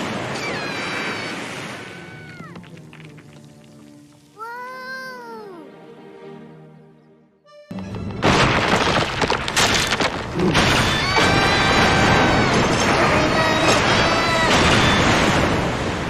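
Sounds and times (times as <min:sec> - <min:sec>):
cartoon earthquake rumbling and crashing: 0:08.1 - 0:16.0.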